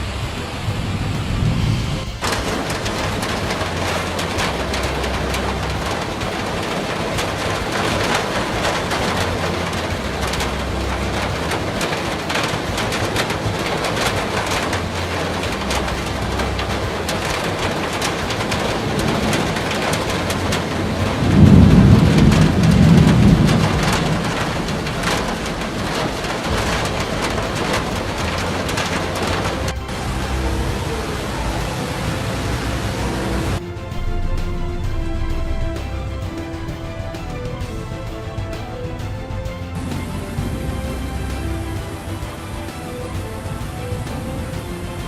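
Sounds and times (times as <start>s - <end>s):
heavy rain pouring: 0.0s - 45.0s
rumble of thunder: 0.0s - 45.0s.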